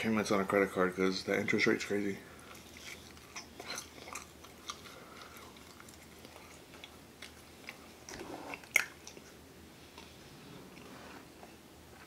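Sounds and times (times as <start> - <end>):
person chewing: 2.4 - 10.2.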